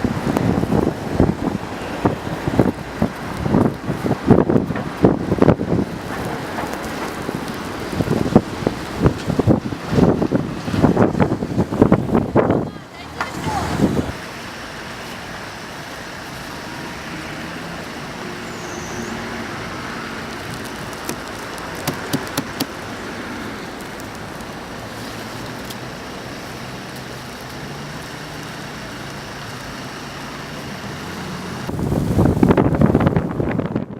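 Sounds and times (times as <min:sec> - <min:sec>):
car engines: 0:00.0 - 0:33.9
tyres on snowy street: 0:00.0 - 0:33.9
sharp clicks or knocks: 0:21.0 - 0:22.8.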